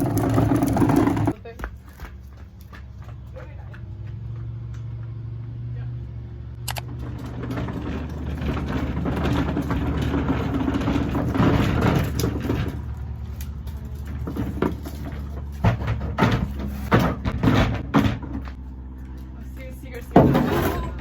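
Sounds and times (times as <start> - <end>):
bin wheels rumbling on ground: 0.0 - 21.0.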